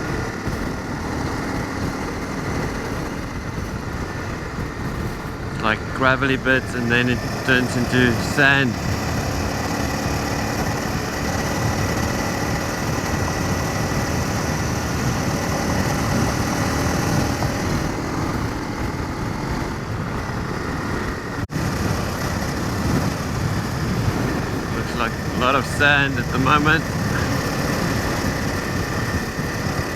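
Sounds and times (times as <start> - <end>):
motorcycle engine running: 0.0 - 29.9
road noise: 0.0 - 29.9
wind noise: 0.0 - 29.9.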